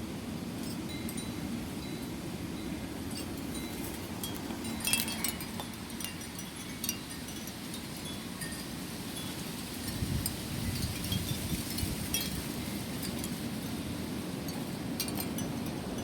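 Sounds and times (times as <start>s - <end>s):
low rumble of wind: 0.0s - 16.0s
wind chimes ringing: 0.6s - 13.4s.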